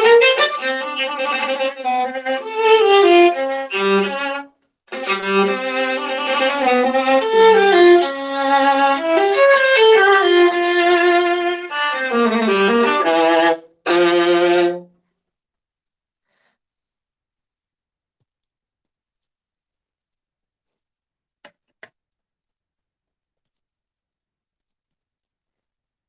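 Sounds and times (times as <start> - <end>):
solo viola playing bowed notes: 0.0 - 14.9.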